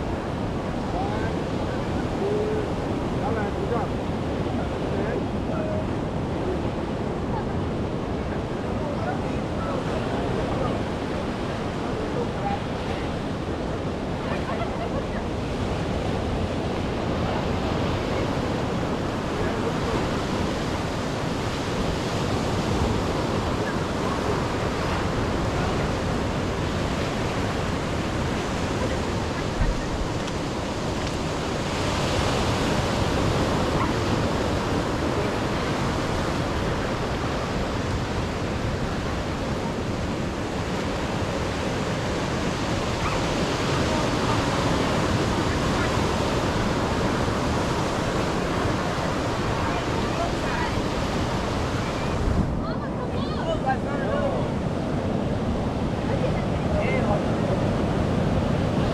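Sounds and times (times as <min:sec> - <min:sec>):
surf washing over rocks: 0:00.0 - 0:58.9
wind buffeting microphone: 0:00.0 - 0:58.9.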